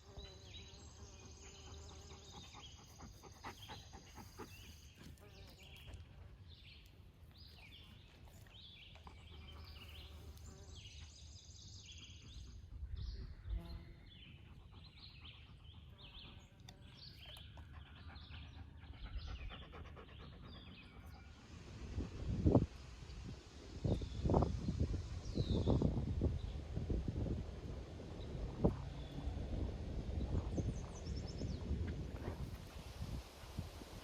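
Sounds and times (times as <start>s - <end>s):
small birds chirping: 0.0s - 21.5s.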